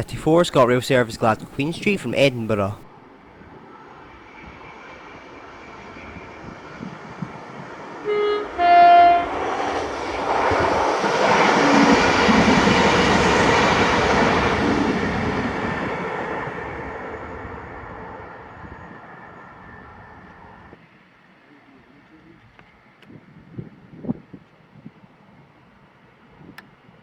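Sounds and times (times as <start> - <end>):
train wheels rushing on rails: 3.6 - 20.8
train two-tone horn: 8.0 - 9.9.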